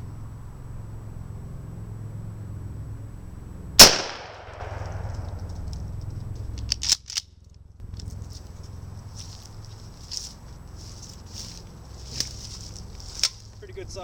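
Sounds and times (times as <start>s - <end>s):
shotgun blast with echo: 3.8s - 5.4s.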